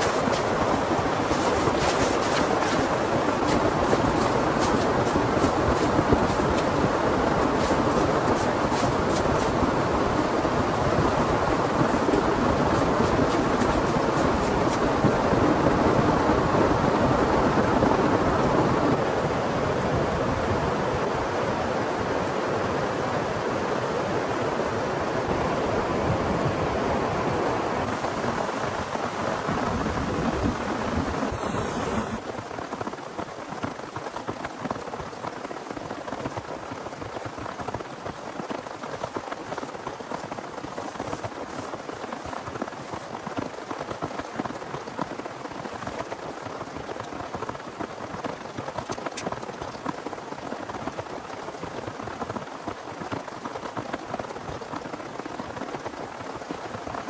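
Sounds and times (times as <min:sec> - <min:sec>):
heavy rain pouring: 0:00.0 - 0:18.9.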